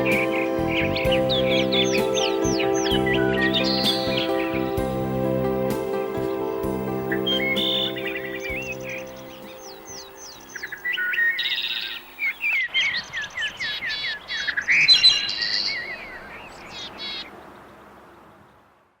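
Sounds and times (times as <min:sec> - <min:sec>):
music track: 0:00.0 - 0:12.2
songbirds chorus: 0:00.0 - 0:19.0.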